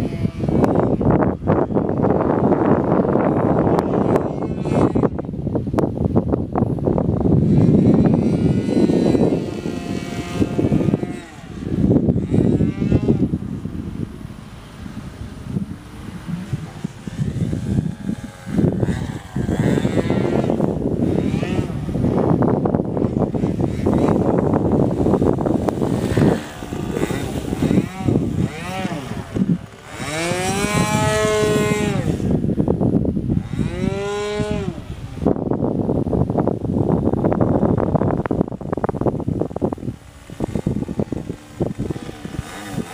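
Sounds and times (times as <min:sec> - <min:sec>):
model airplane engine whine: 0:00.0 - 0:42.9
wind buffeting microphone: 0:00.0 - 0:42.9.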